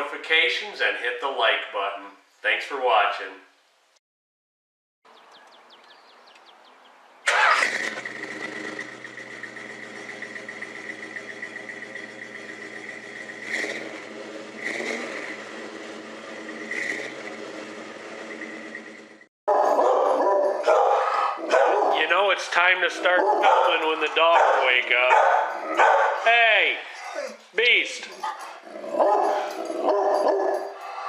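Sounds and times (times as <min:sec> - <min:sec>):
car engine starting and running: 0:07.2 - 0:19.3, 0:21.5 - 0:26.2
engine throttle blips: 0:07.2 - 0:19.3, 0:21.5 - 0:26.2.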